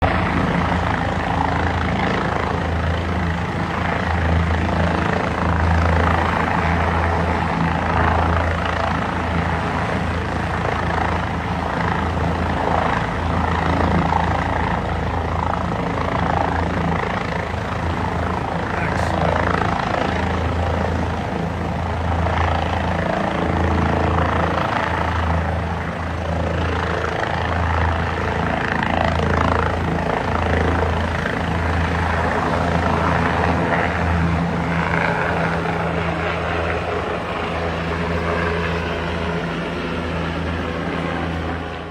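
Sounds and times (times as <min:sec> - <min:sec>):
helicopter rotor and engine: 0:00.0 - 0:41.9.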